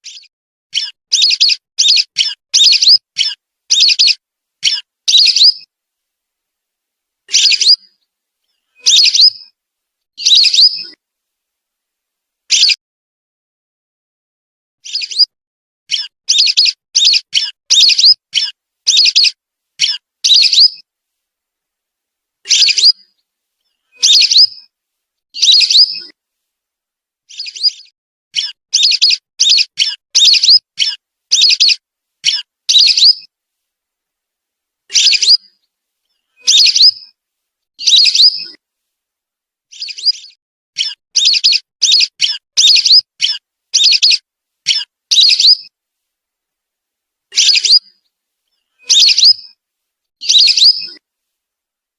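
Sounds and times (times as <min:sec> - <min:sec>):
whistling duck calls: 0:48.8 - 0:49.4.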